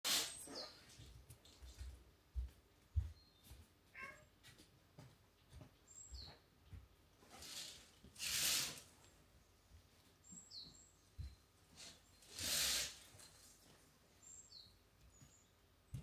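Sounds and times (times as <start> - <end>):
small birds chirping: 0.2 - 4.4, 5.4 - 7.8, 8.5 - 13.0, 14.1 - 16.0.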